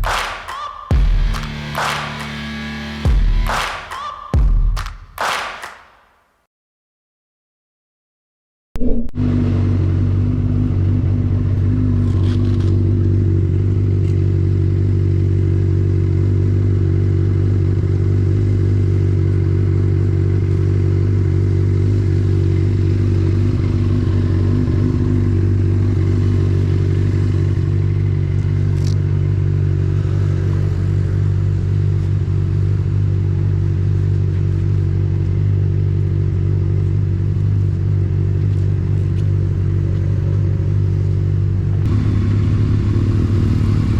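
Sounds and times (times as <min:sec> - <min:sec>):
motorcycle engine idling: 0:09.3 - 0:43.9.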